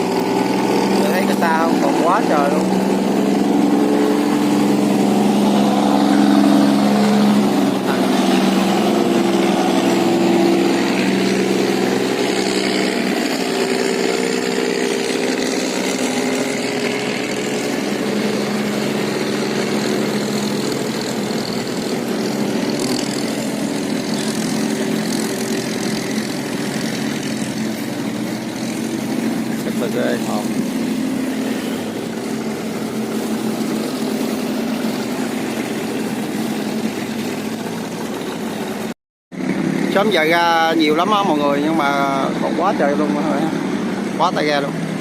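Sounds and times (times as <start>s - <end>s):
boat engines passing: 0.0s - 45.0s.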